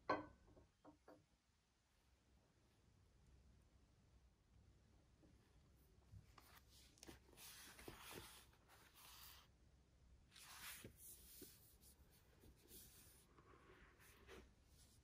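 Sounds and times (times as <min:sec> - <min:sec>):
faint scratching strokes: 0:06.3 - 0:09.5, 0:10.3 - 0:15.0.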